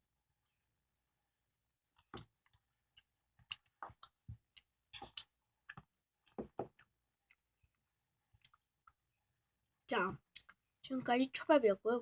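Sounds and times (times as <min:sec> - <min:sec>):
mouth clicks and smacks chewing: 0:02.0 - 0:07.8, 0:08.4 - 0:09.0.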